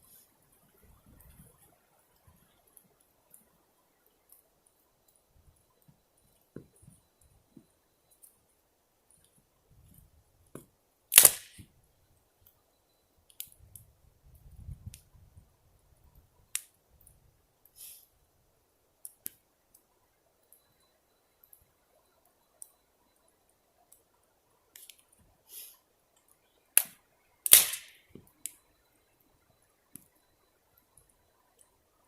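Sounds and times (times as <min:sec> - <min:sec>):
faint ticks: 0:00.0 - 0:10.6, 0:12.1 - 0:15.1, 0:19.0 - 0:27.2, 0:28.2 - 0:32.0
campfire wood popping: 0:09.1 - 0:11.7, 0:13.3 - 0:15.1, 0:24.7 - 0:28.6.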